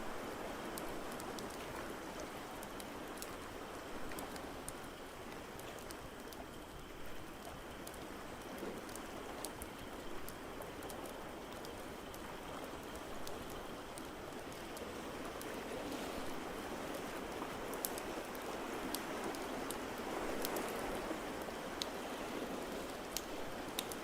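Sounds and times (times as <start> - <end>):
rush of water: 8.0 - 24.0.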